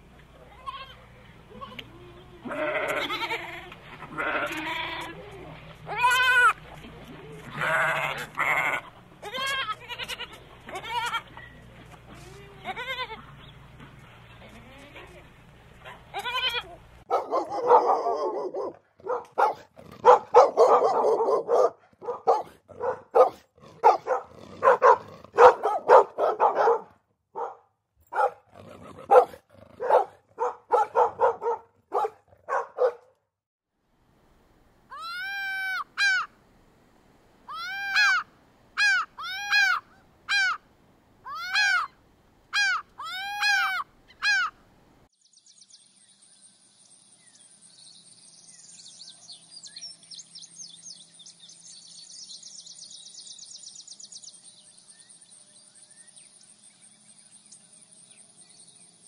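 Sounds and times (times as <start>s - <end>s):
dogs barking: 15.8s - 16.2s, 17.0s - 33.2s
gull calling: 37.5s - 40.6s, 41.3s - 44.6s.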